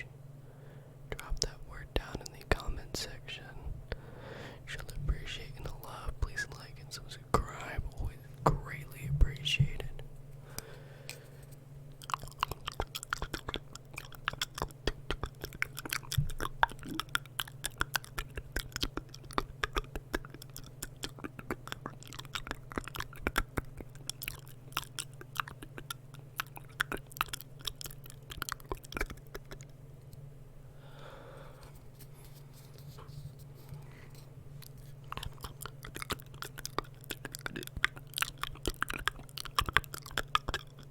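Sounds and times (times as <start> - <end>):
steady low hum: 0.0 - 40.9
wet mouth clicks and smacks: 11.9 - 29.8, 34.6 - 40.9.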